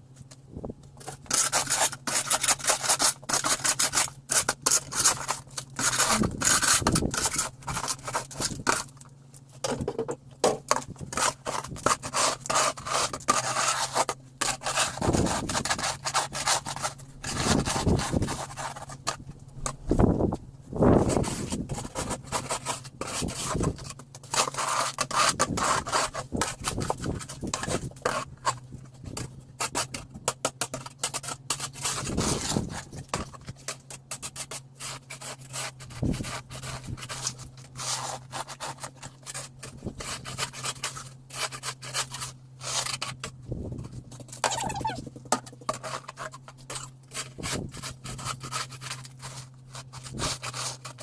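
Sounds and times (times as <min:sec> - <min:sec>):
steady low hum: 0:00.0 - 0:30.3
snow shovel scraping snow: 0:01.4 - 0:08.9, 0:11.1 - 0:19.1, 0:31.7 - 0:33.1, 0:34.8 - 0:43.7, 0:44.4 - 0:45.0, 0:47.1 - 0:51.0.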